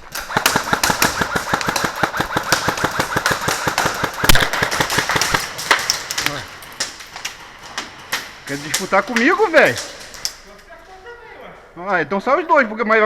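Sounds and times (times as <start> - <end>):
airsoft gun firing full auto: 0.0 - 6.8
loud crack: 0.0 - 10.8.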